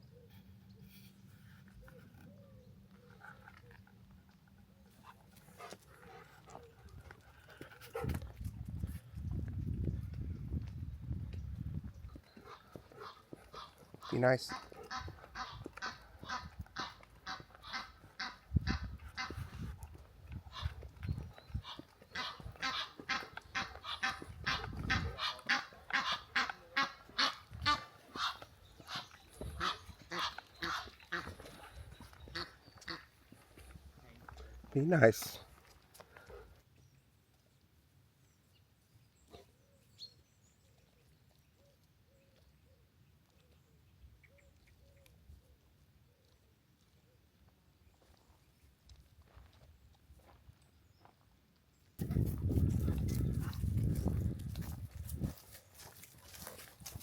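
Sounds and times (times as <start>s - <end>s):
dog panting: 3.0s - 9.0s, 12.2s - 18.2s.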